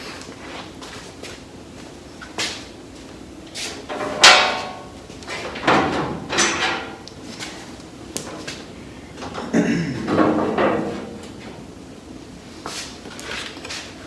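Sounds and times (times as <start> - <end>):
metal parts knocking and scraping: 3.9 - 4.9, 5.5 - 7.1, 9.2 - 11.6.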